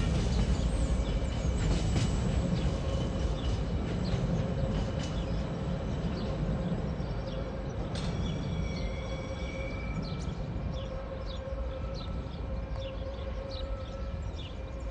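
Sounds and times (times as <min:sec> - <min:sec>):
train wheels rumbling on rail: 0:00.0 - 0:14.9.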